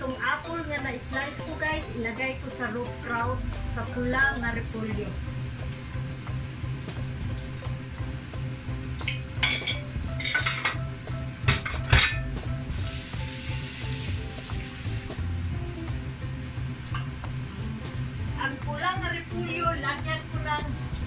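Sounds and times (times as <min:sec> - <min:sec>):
hissing sizzle: 0:04.1 - 0:21.0
cabbage frying in a pot: 0:04.2 - 0:18.4
spoon and pots clinking: 0:09.0 - 0:10.8, 0:11.4 - 0:12.3.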